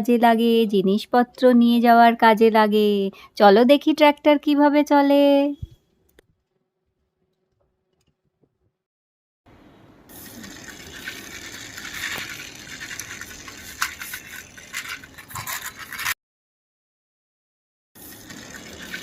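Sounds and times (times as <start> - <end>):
toy tractor wheels rattling: 10.4 - 16.2, 18.0 - 19.0.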